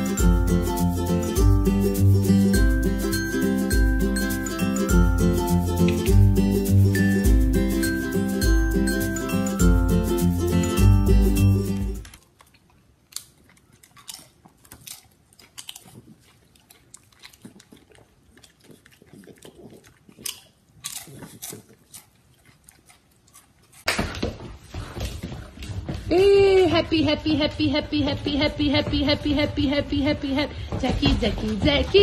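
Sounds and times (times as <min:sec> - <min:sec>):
music: 0:00.0 - 0:12.1
crunchy snack chewing: 0:12.0 - 0:23.9.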